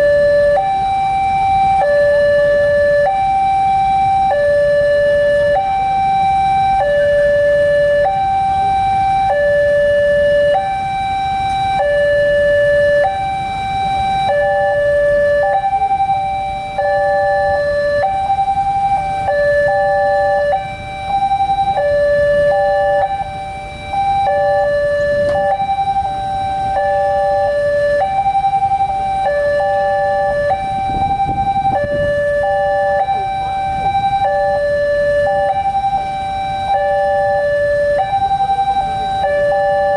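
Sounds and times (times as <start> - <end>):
railroad crossing alarm two-tone: 0.0 - 39.9
second crossing alarm: 0.0 - 39.9.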